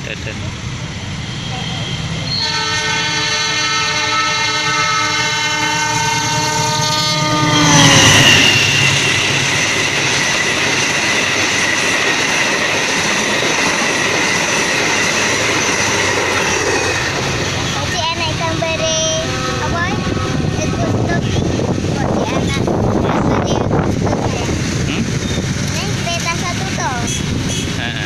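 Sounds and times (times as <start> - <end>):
train carriages rushing past: 0.0 - 28.0
train horn: 2.3 - 9.1, 19.1 - 21.5, 27.1 - 28.0.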